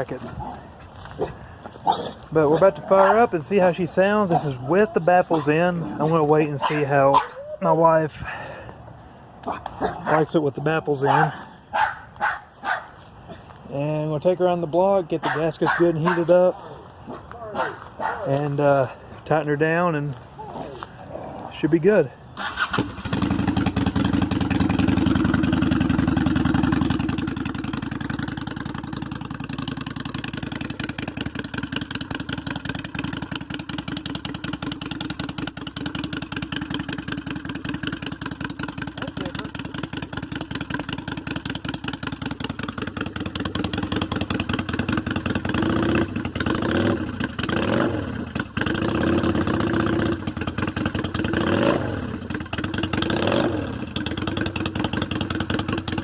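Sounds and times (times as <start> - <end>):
motorcycle engine revving: 0.0 - 7.0, 22.3 - 56.0
motorcycle engine idling: 0.0 - 21.0, 22.0 - 56.0.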